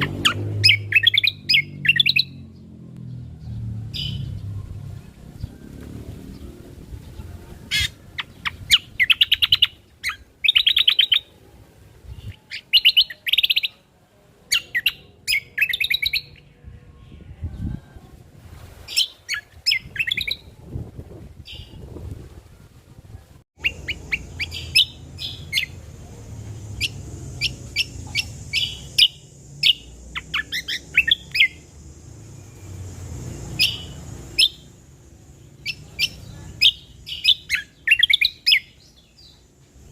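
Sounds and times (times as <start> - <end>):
songbird chirps and trills: 0.0 - 39.9.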